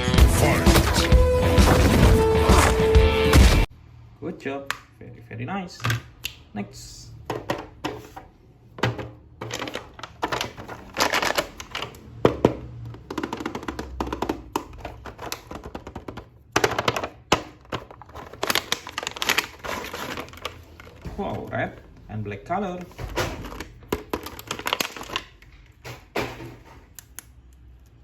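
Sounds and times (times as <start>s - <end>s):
plastic packaging clicks and knocks: 8.8s - 21.7s, 22.8s - 27.2s
packaging crinkling rustles: 9.4s - 12.0s, 16.8s - 21.9s, 22.8s - 25.6s.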